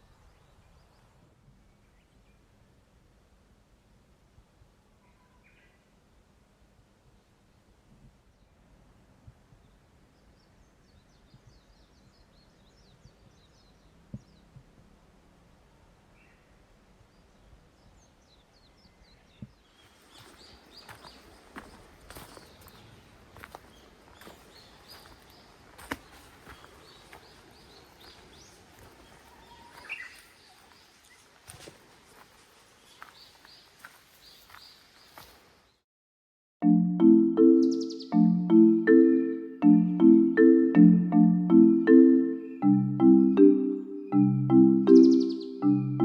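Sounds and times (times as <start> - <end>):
faint outdoor background noise: 0.0 - 35.8, 36.6 - 46.0
songbird twittering: 18.9 - 31.2, 37.4 - 38.4, 44.1 - 45.8
small bird high chirps: 29.2 - 31.2, 37.6 - 38.2, 44.9 - 45.7.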